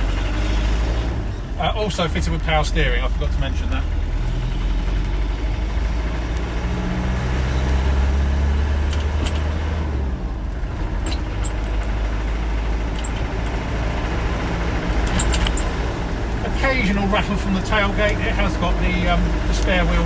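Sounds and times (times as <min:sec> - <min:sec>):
diesel engine drone: 0:00.0 - 0:20.0
light rattles: 0:07.6 - 0:20.0.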